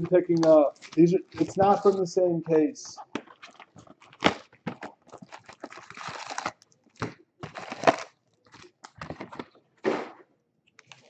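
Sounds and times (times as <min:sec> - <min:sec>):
packaging crinkling and tearing: 0:00.0 - 0:02.0, 0:03.1 - 0:09.6, 0:10.8 - 0:11.0.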